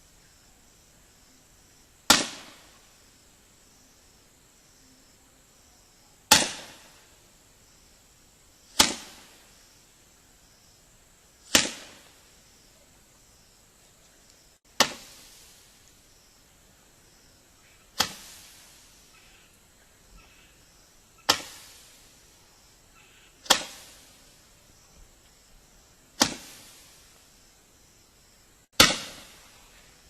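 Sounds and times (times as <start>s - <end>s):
firework hiss: 2.0s - 3.2s, 6.2s - 7.3s, 8.6s - 10.0s, 11.4s - 12.7s, 14.3s - 19.6s, 20.2s - 24.9s, 26.1s - 27.5s, 28.6s - 30.0s
roman candle pops: 18.0s - 18.6s.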